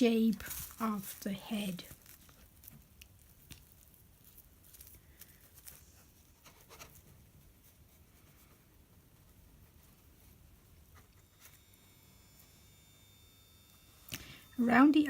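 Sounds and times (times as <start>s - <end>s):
fingers rubbing modelling clay: 0.0s - 11.4s.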